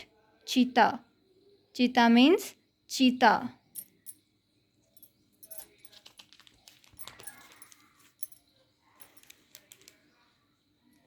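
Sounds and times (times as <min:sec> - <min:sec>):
small objects clicking and clattering: 0:05.0 - 0:10.1.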